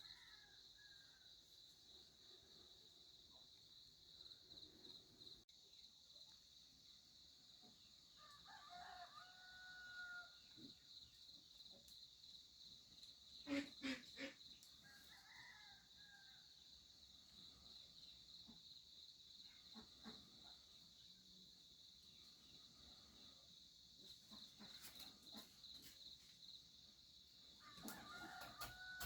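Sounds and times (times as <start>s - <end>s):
rooster crowing: 0.0s - 1.3s, 8.2s - 10.5s, 14.8s - 16.5s, 27.6s - 29.0s.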